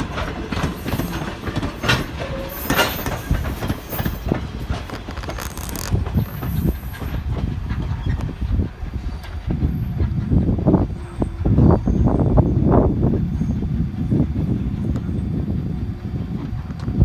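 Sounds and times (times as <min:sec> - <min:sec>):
train wheels clacking: 0:00.0 - 0:10.7
wind buffeting microphone: 0:00.0 - 0:17.0
high wheel squeal: 0:00.8 - 0:07.2, 0:10.9 - 0:12.6.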